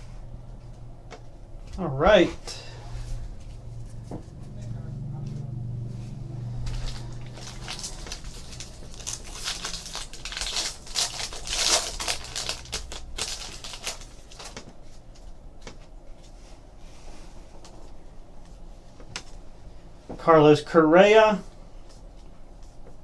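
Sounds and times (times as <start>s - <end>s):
card wrappers crinkling: 6.7s - 14.8s.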